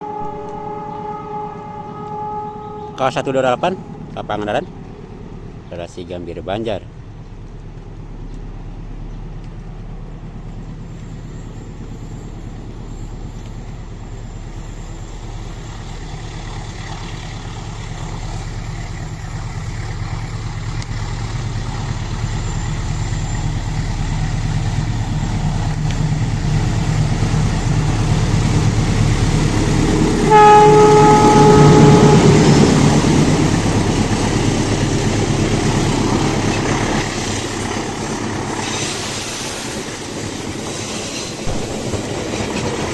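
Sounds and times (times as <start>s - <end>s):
locomotive horn: 0.0s - 4.6s, 26.7s - 33.7s
passing train rumble: 0.0s - 42.9s.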